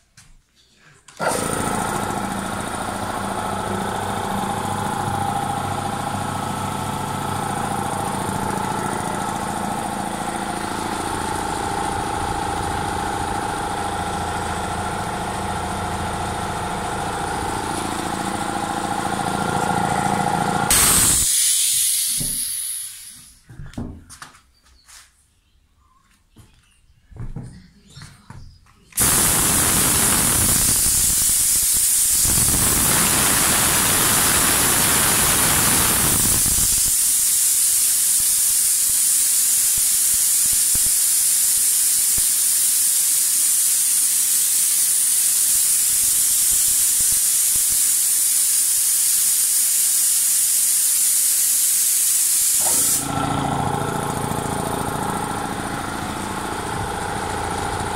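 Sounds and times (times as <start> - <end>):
compressor motor humming: 1.2 - 23.8, 29.0 - 37.5, 52.3 - 57.9
compressed air hissing: 20.7 - 23.5, 29.0 - 53.1.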